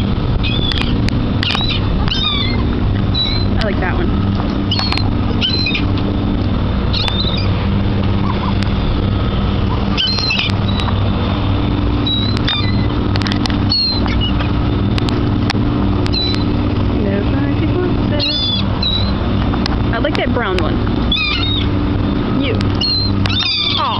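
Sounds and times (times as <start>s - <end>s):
engine humming: 0.0s - 23.9s
high-pitched bird calls: 0.4s - 3.6s, 4.6s - 5.9s, 6.9s - 7.6s, 9.7s - 11.1s, 12.0s - 13.0s, 13.7s - 14.5s, 16.1s - 16.5s, 18.1s - 19.2s, 21.1s - 21.8s, 22.7s - 23.9s.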